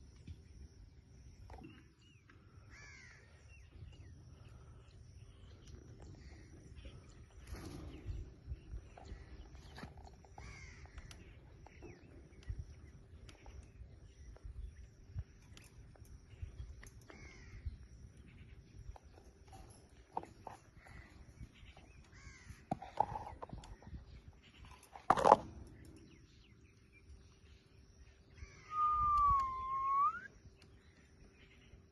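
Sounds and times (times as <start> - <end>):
parrot whistling: 28.6 - 30.3.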